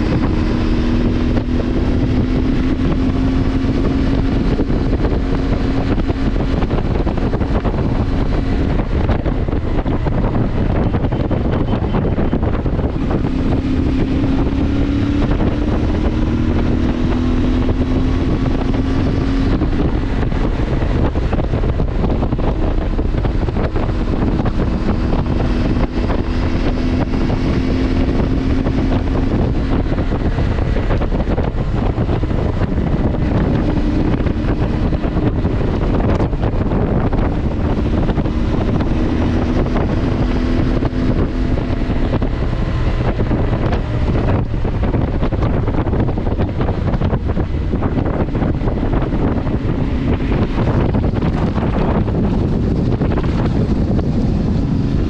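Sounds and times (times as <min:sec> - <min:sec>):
engine running: 0:00.0 - 0:55.0
wind buffeting microphone: 0:00.0 - 0:55.0.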